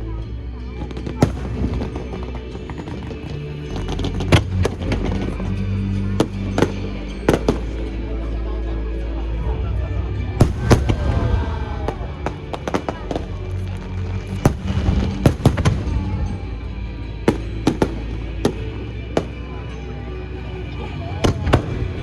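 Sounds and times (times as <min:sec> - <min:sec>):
music playing: 0:00.0 - 0:22.0
fireworks bursting with bangs: 0:01.0 - 0:05.1, 0:06.2 - 0:07.8, 0:10.4 - 0:16.4, 0:17.3 - 0:19.4.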